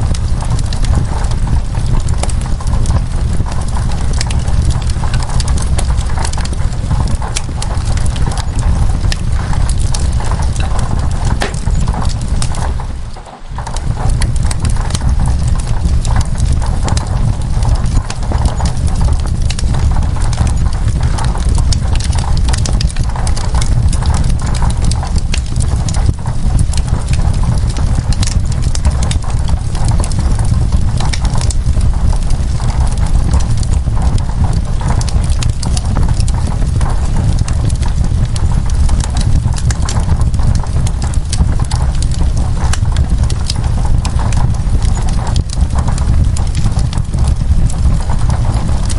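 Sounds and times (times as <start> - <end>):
rain on window glass: 0.0 - 48.9
wood fire crackling and popping: 0.0 - 48.9
low rumble: 4.7 - 23.2.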